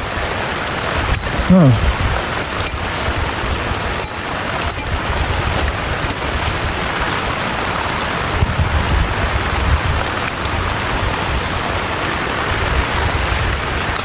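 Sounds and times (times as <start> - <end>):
heavy rain: 0.0 - 14.0.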